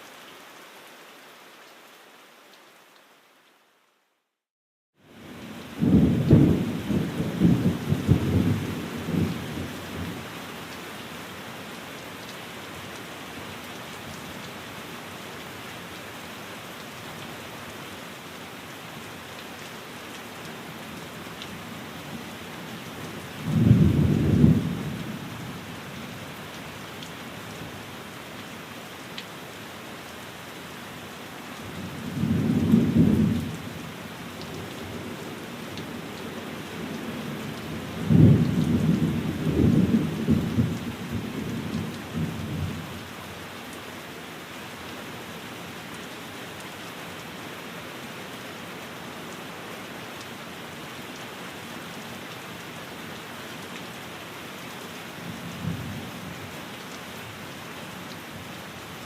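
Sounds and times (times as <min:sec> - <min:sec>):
steady rain falling: 0:00.0 - 0:04.4, 0:05.0 - 0:59.0
low rolling thunder: 0:05.8 - 0:10.1, 0:23.4 - 0:25.0, 0:38.0 - 0:42.8.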